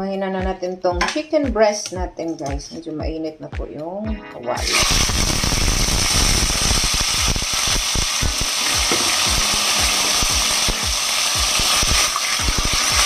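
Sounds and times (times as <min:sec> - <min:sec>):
chicken sizzling in oil: 0:04.6 - 0:13.0.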